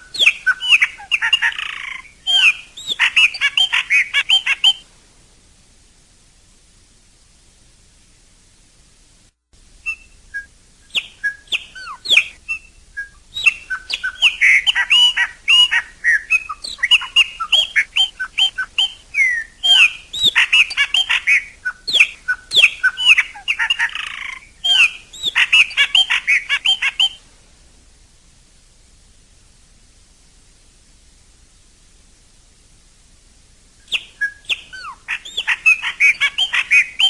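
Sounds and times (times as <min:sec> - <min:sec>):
blackbird singing: 0:00.0 - 0:04.8, 0:09.8 - 0:27.2, 0:33.9 - 0:37.0.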